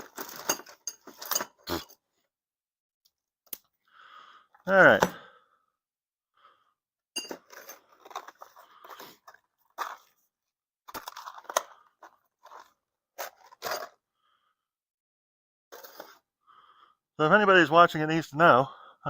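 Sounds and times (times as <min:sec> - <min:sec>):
hand tools clicking and rattling: 0:00.0 - 0:01.9, 0:07.2 - 0:08.6.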